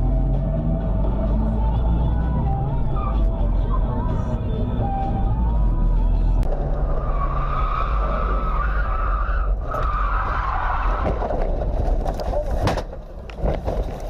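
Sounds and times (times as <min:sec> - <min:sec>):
engine and road rumble: 0:00.0 - 0:14.0
car tyres squealing: 0:06.6 - 0:12.6.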